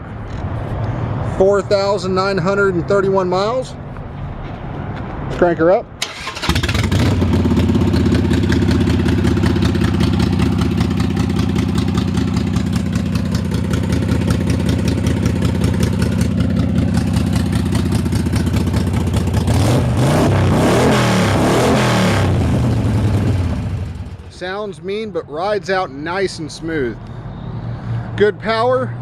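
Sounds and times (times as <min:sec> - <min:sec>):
motorcycle engine idling and revving: 0:06.0 - 0:24.4.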